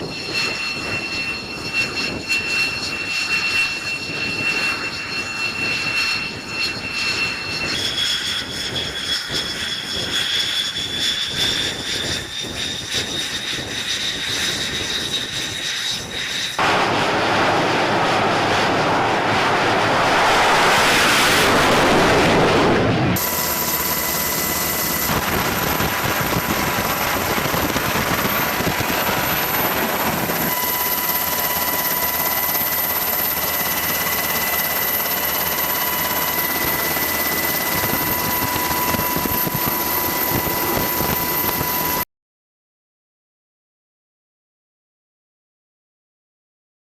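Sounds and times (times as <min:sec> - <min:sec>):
jet turbine whine: 0:00.0 - 0:42.1
loud rushing jet roar: 0:16.5 - 0:41.7.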